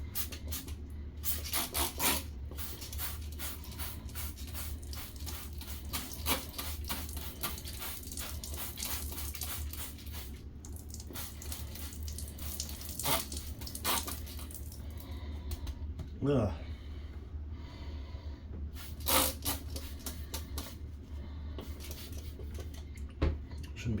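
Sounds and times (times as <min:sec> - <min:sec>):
steady low hum: 0:00.0 - 0:24.0
water splashing and squishing: 0:04.4 - 0:14.8
running water: 0:04.8 - 0:14.9.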